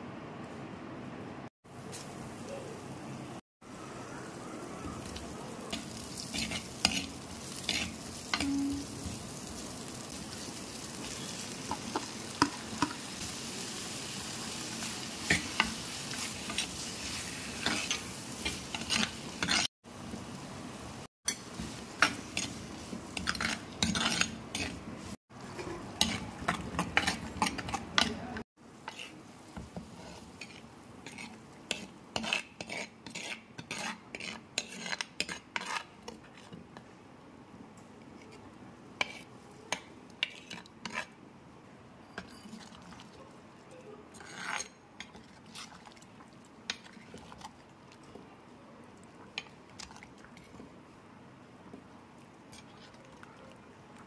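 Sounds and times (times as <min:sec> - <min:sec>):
food sizzling in oil: 0:03.7 - 0:36.0.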